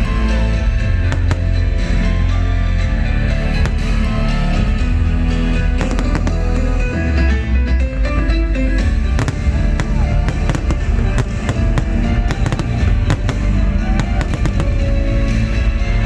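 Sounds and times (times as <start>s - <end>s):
fireworks bursting: 0.9s - 7.4s, 9.0s - 16.0s
loud music: 9.2s - 16.0s.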